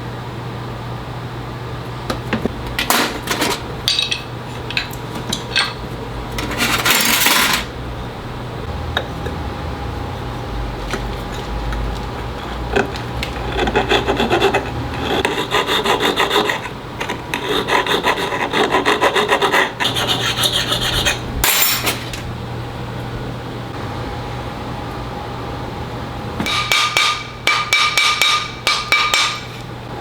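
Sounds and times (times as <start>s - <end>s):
steady low hum: 0.0s - 30.0s
hand file rasping on metal: 12.2s - 21.3s.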